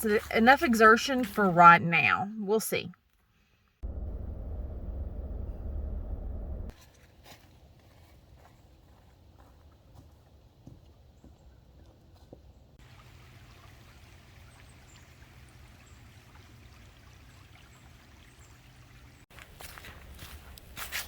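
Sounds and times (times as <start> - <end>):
footsteps on a path: 6.7 - 12.7, 19.3 - 21.0
water trickling: 12.8 - 19.3.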